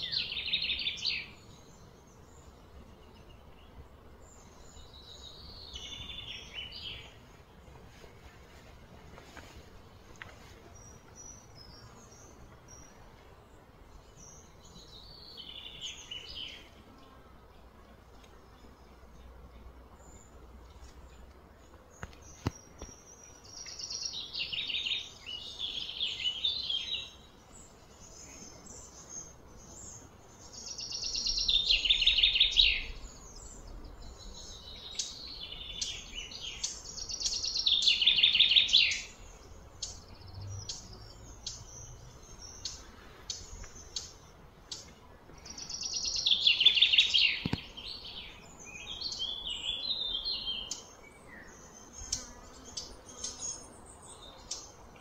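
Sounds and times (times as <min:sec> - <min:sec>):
faint outdoor background noise: 0:00.0 - 0:55.0.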